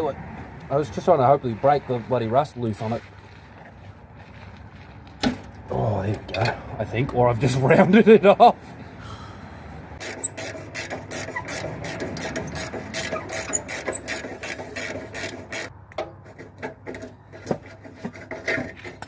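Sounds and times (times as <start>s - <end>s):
ratchet wrench clicking: 10.0s - 15.7s.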